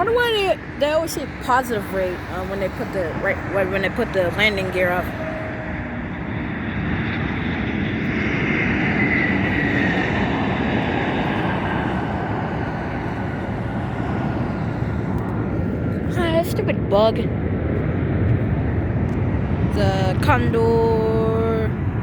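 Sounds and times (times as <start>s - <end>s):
jet engine whine: 0.0s - 22.0s
jet engines rumbling: 0.0s - 22.0s.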